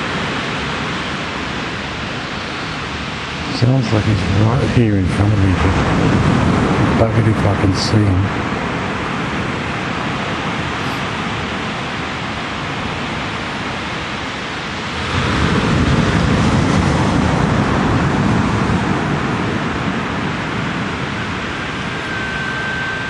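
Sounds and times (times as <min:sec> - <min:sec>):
rushing wind: 0:00.0 - 0:23.0
bird long whistle: 0:21.8 - 0:23.0.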